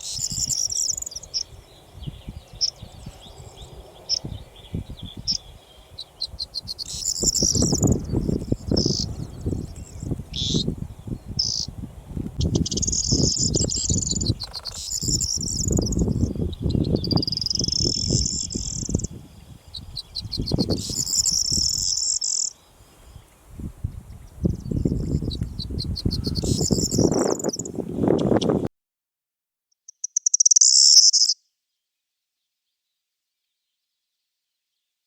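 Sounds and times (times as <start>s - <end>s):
bird singing jangling song: 0.0s - 5.5s, 6.1s - 10.7s, 11.4s - 11.7s, 12.4s - 22.5s, 24.3s - 28.6s, 29.9s - 31.4s
wind buffeting microphone: 0.2s - 22.0s, 23.0s - 28.7s.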